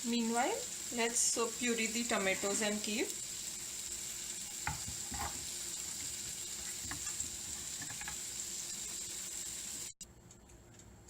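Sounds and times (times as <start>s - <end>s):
cheese sizzling in oil: 0.0s - 10.0s
stirring scrapes in pan: 4.3s - 9.1s.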